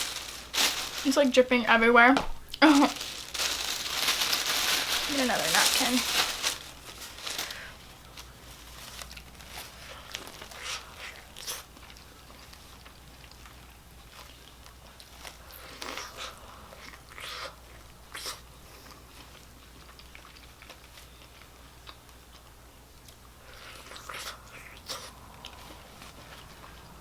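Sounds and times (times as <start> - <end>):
low steady hum: 0.0 - 27.0
person chewing crunchy food: 6.1 - 27.0.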